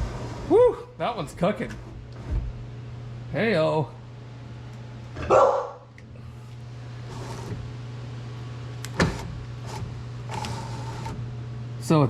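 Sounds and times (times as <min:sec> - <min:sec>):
power window motor humming: 0:06.0 - 0:11.5.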